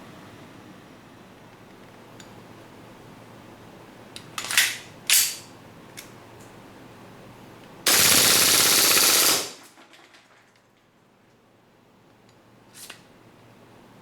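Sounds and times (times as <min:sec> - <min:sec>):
airsoft pistol full-auto burst: 0:07.9 - 0:09.6.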